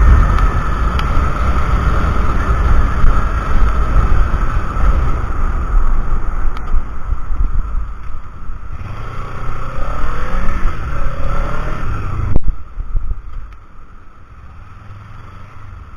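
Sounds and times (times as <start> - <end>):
wind buffeting microphone: 0.0 - 8.8
motorcycle running: 0.0 - 15.9.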